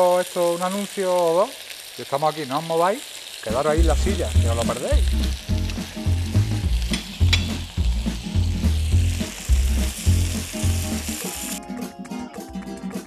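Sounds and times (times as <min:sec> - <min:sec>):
meat sizzling in a pan: 0:00.0 - 0:11.6
music with pulsing bass: 0:03.8 - 0:11.2.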